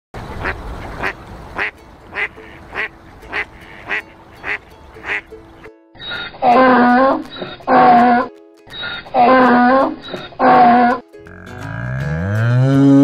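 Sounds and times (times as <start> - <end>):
duck quacking: 0.3 - 5.3, 8.9 - 11.8.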